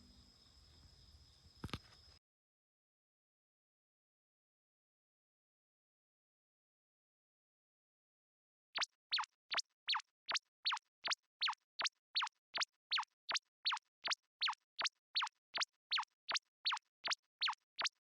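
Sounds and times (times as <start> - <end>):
electronic falling whistle chirps: 16.7 - 18.0.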